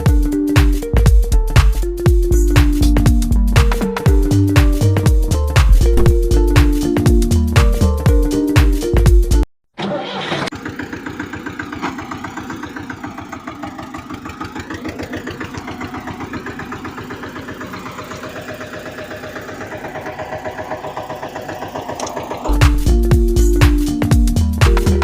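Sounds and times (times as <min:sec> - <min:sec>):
engine chugging: 0:10.1 - 0:25.0.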